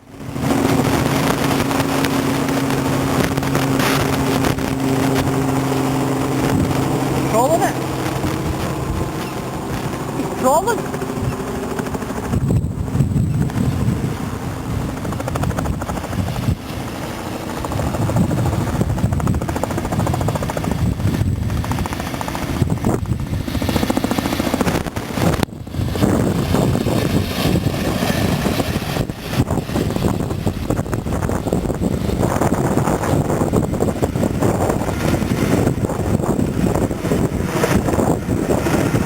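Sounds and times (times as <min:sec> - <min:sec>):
steam locomotive rumbling past: 0:00.1 - 0:20.0.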